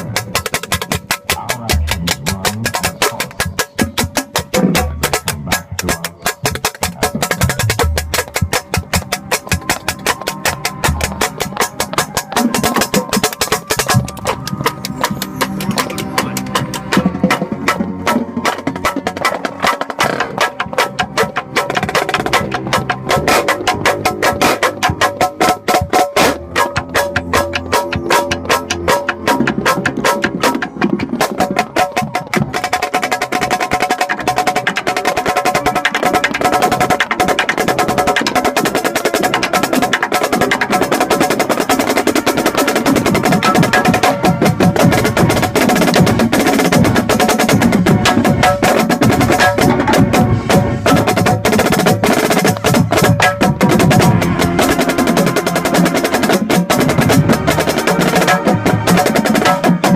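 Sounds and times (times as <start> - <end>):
snare drum strokes and rolls: 0.0 - 59.9
brass and wind chords: 41.7 - 52.2, 53.0 - 59.9.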